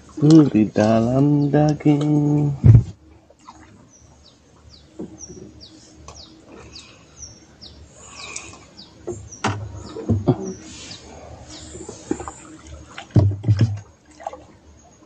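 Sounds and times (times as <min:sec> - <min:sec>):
low thuds: 0:02.0 - 0:03.0.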